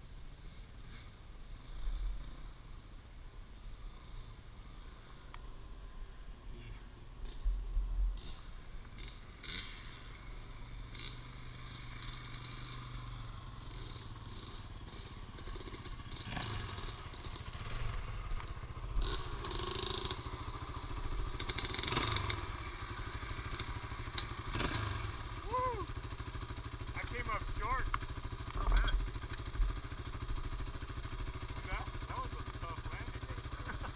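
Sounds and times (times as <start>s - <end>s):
dirt bike engine running: 7.0s - 33.9s.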